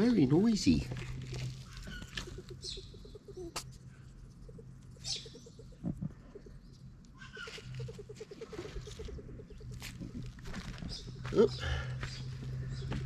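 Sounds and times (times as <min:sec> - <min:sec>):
rat chirping in low pulses: 0:00.0 - 0:12.9
steady low hum: 0:00.0 - 0:13.0
high bird chirps: 0:04.5 - 0:09.8.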